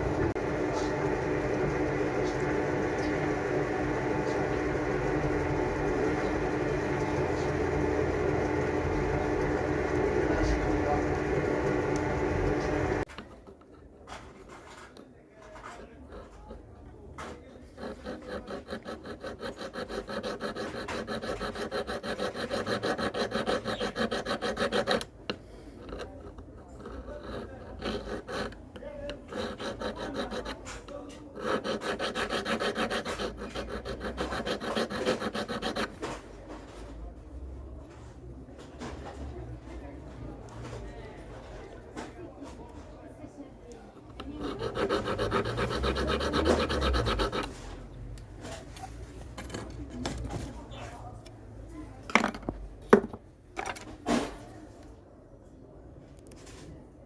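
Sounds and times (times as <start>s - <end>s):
metal file rasping on metal: 0.3s - 13.0s, 15.6s - 36.2s, 44.1s - 47.8s.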